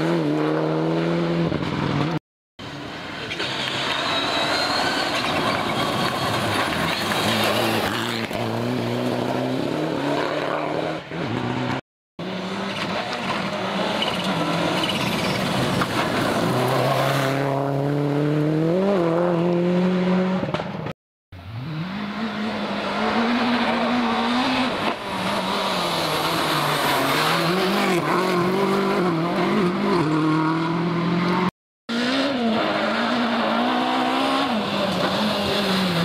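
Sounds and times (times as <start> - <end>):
rally car engines revving: 2.8 - 36.0
tyres on loose dirt: 2.9 - 9.2.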